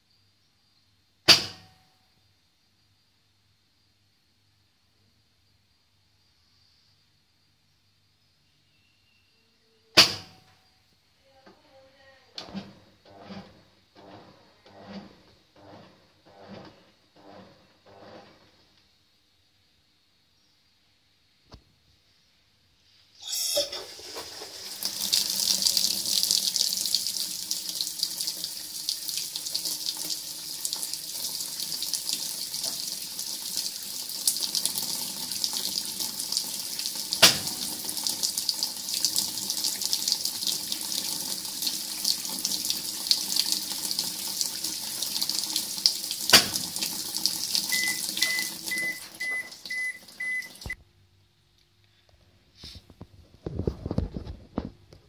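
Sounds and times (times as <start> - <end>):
water running in washing machine: 23.6 - 50.8
short beeps: 47.7 - 50.8.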